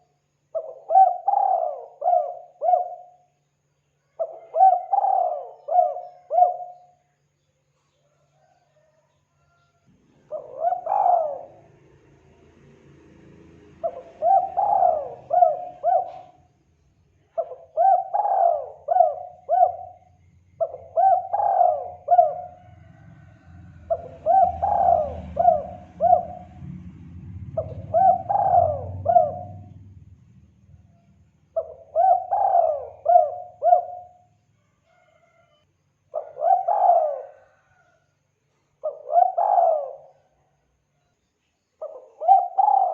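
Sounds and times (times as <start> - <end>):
dove cooing: 0.0 - 3.3, 4.1 - 7.0, 8.1 - 9.5, 10.1 - 11.9, 13.8 - 16.5, 17.3 - 26.8, 27.5 - 29.8, 31.6 - 35.4, 36.1 - 38.0, 38.8 - 40.4, 41.8 - 42.9
low rumble: 25.4 - 31.4.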